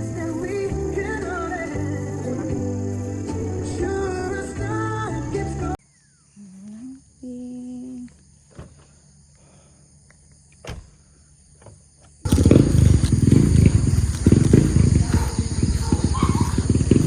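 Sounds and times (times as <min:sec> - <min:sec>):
wind buffeting microphone: 0:12.3 - 0:17.0.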